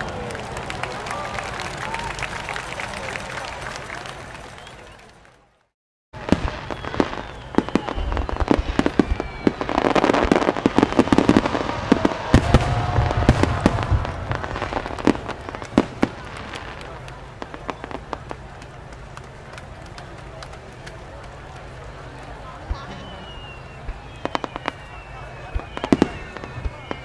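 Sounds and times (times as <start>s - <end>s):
whistling fireworks: 0.0s - 5.5s, 6.2s - 27.0s
fireworks bursts and bangs: 6.2s - 27.0s
fireworks crackle: 6.2s - 27.0s.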